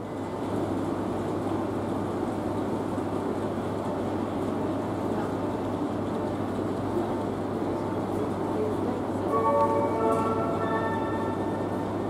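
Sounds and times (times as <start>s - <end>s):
train rumbling: 0.0s - 12.0s
low steady hum: 9.3s - 12.0s.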